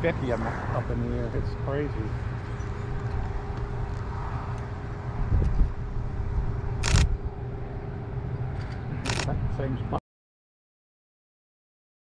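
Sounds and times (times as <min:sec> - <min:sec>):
vehicle engine rumbling: 0:00.0 - 0:10.0
camera shutter firing rapidly: 0:06.8 - 0:07.1, 0:09.0 - 0:09.3.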